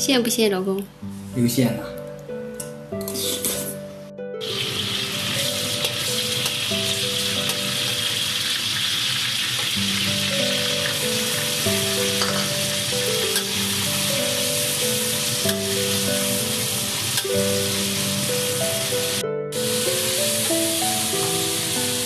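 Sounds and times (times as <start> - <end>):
soft background music: 0.0 - 22.0
meat stir-frying with spatula: 4.4 - 22.0
scallions sizzling in hot oil: 4.4 - 22.0.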